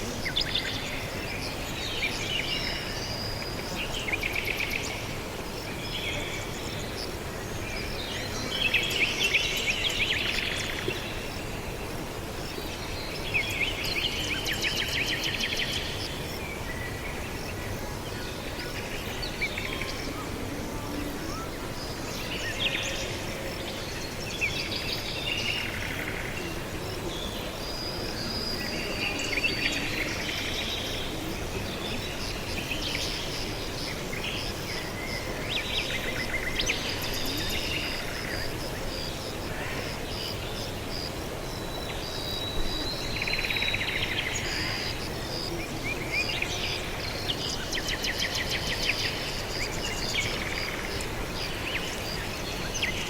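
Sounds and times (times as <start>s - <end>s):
outdoor background noise: 0.0s - 53.0s
birds chirping and twittering: 27.1s - 53.0s.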